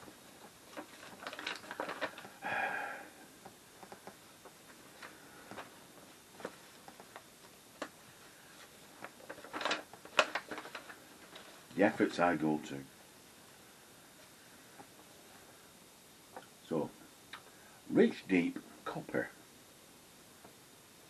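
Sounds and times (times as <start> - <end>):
paper rustle: 0.4 - 2.4, 4.7 - 11.7.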